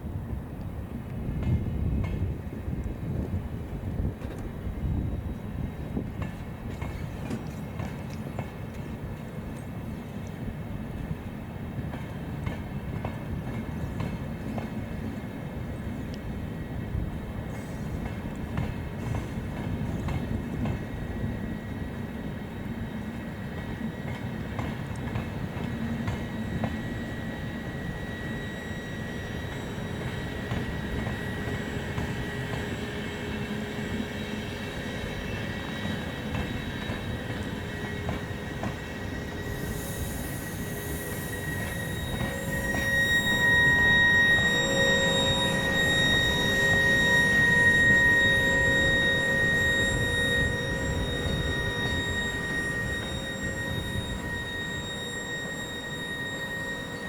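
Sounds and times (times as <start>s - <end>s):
train rumbling on track: 0.0s - 57.0s
wheels squealing: 25.6s - 57.0s.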